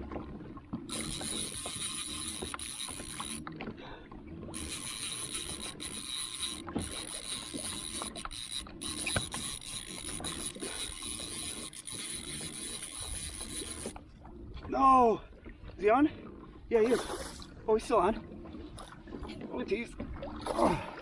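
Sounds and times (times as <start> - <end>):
water and wind hiss: 0.0 - 21.0
fishing reel clicking: 0.9 - 3.5, 4.5 - 14.0.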